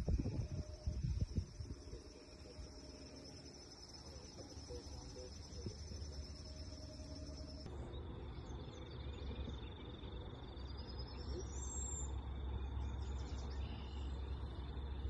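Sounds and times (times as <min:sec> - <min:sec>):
low rumble: 0:00.0 - 0:09.6
bird calls: 0:00.0 - 0:15.0
high-pitched whine: 0:00.0 - 0:15.0.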